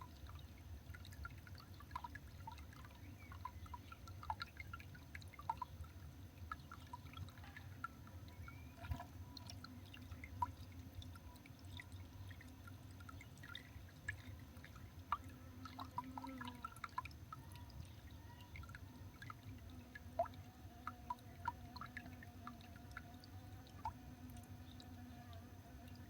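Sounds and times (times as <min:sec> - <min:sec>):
low steady hum: 0:00.0 - 0:26.0
small birds ticking and calling: 0:01.2 - 0:19.8.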